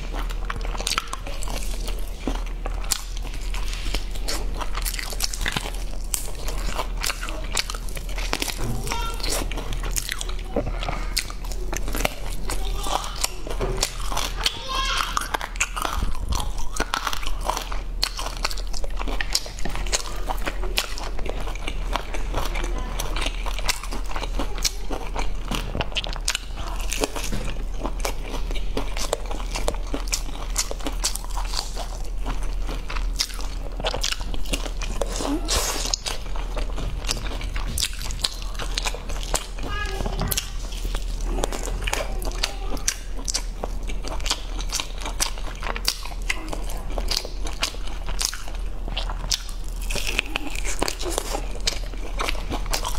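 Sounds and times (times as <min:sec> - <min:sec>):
chewing crunchy fried meat: 0:00.0 - 0:52.9.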